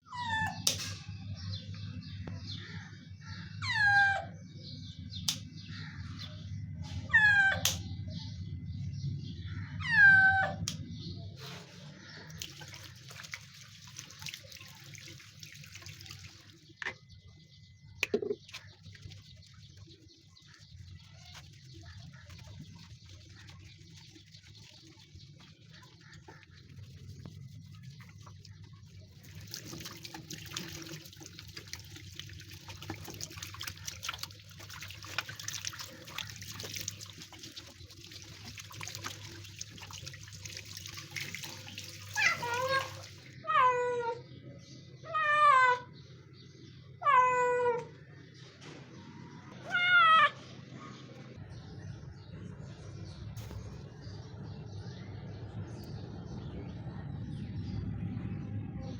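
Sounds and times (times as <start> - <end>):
running water: 11.5 - 17.4, 18.0 - 43.4.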